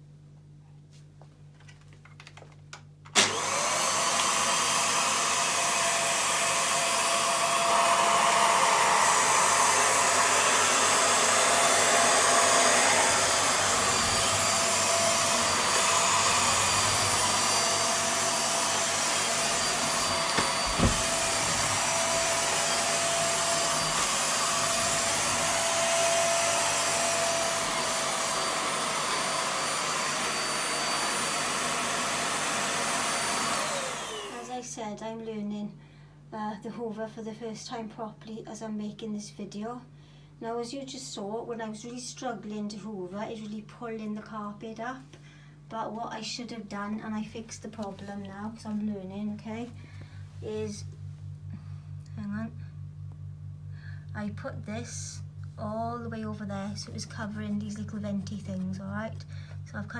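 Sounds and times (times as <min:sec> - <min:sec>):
vacuum cleaner running: 0:03.1 - 0:34.7, 0:48.7 - 0:52.6, 0:53.9 - 0:59.9.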